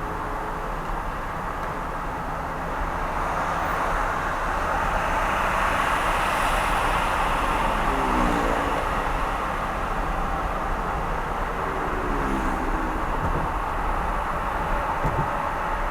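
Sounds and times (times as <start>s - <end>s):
tyre and road noise: 0.0s - 15.9s.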